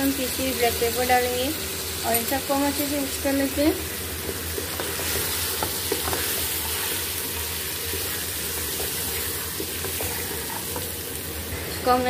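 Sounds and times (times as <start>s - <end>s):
food sizzling in hot oil: 0.0s - 12.0s
wooden spoon stirring: 4.0s - 11.1s.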